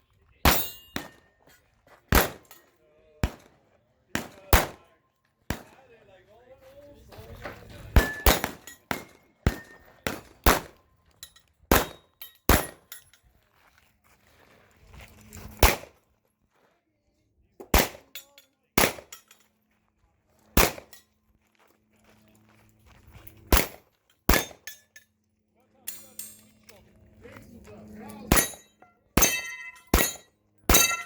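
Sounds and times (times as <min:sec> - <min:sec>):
pistol shots: 0:02.1 - 0:02.6, 0:03.2 - 0:03.5, 0:04.2 - 0:04.8, 0:05.5 - 0:05.8, 0:08.0 - 0:10.8, 0:11.7 - 0:12.8, 0:15.6 - 0:15.9, 0:17.7 - 0:18.2, 0:18.8 - 0:19.2, 0:20.6 - 0:21.0, 0:23.5 - 0:24.7.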